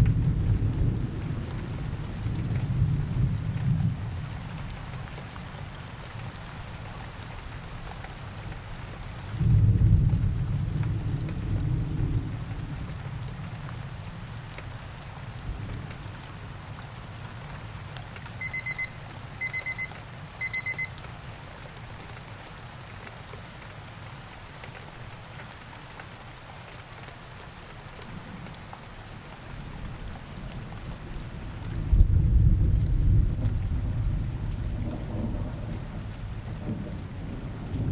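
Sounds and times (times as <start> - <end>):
low thunder rumbles: 0.0 - 4.9, 9.4 - 14.3, 29.6 - 37.9
steady rain: 0.0 - 37.9
digital timer beeps: 18.4 - 21.0.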